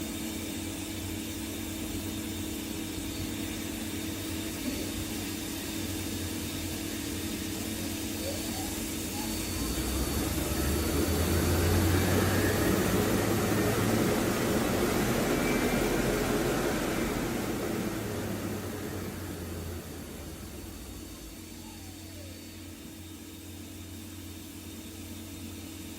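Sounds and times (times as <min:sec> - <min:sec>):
machine mechanical hum: 0:00.0 - 0:25.9
faint rising whine: 0:08.6 - 0:22.7.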